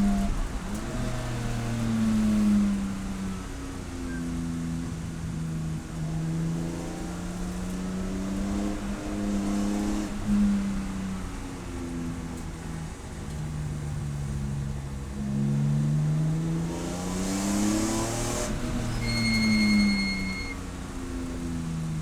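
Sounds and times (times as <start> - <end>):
race car engine revving: 15.2 - 20.6.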